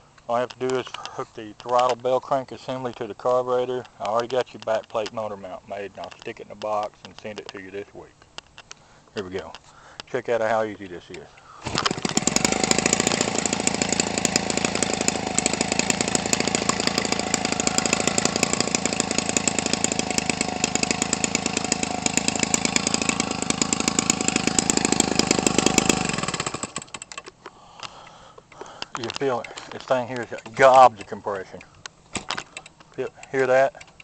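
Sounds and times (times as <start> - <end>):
small two-stroke engine buzzing: 11.6 - 27.2.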